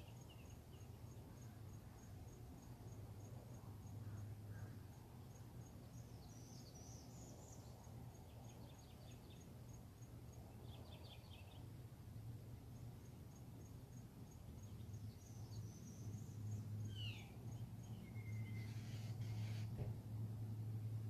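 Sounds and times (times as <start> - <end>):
insect chirping: 0.0 - 19.8
bird call: 18.0 - 19.8
rattling bird calls: 18.4 - 19.8.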